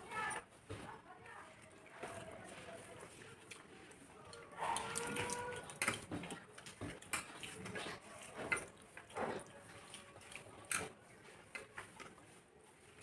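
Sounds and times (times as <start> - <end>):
light clinks of food from plates: 5.1 - 9.5, 10.2 - 12.2.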